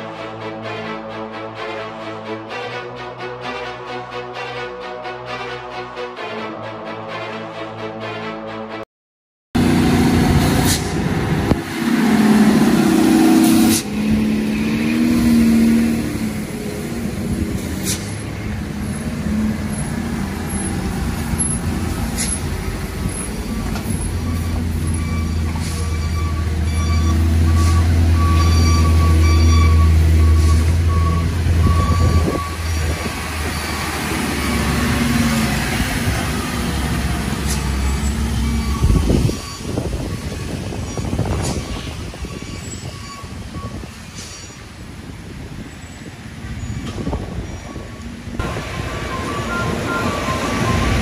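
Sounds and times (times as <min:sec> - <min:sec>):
heavy truck engines: 0:09.6 - 0:51.0
air brake hisses: 0:10.6 - 0:11.0, 0:17.6 - 0:18.2, 0:44.1 - 0:44.7.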